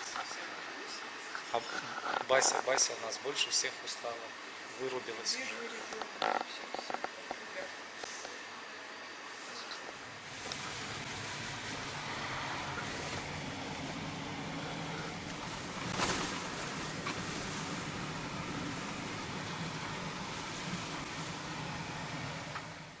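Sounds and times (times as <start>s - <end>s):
background hiss and hum: 0.0s - 23.0s
rustling: 15.3s - 17.8s.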